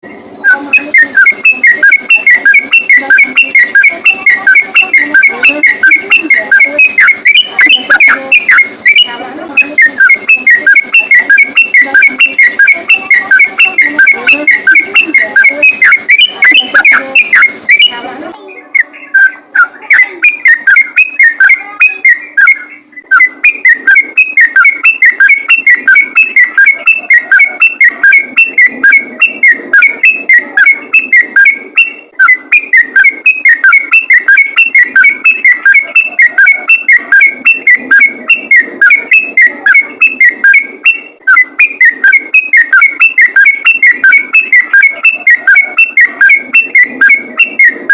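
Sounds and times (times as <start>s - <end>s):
bird singing fast chirping notes: 18.7s - 47.2s.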